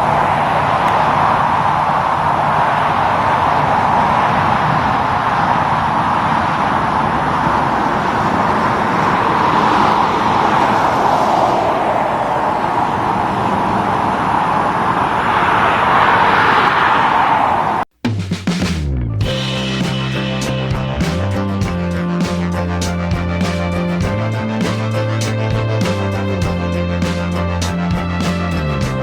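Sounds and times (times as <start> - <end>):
highway traffic passing: 0.0 - 17.9, 19.3 - 29.0
music: 18.0 - 29.0.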